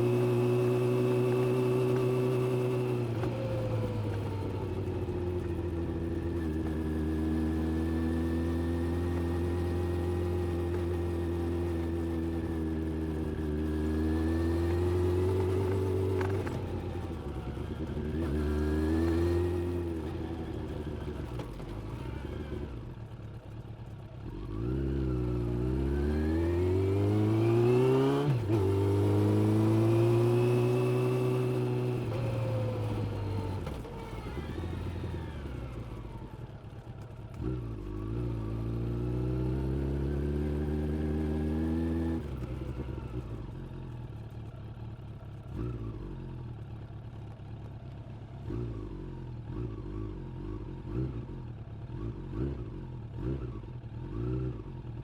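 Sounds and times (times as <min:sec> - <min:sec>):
motorcycle engine accelerating: 0:00.0 - 0:55.0
motorcycle engine idling with throttle blips: 0:14.9 - 0:25.5, 0:31.0 - 0:38.8, 0:42.2 - 0:55.0.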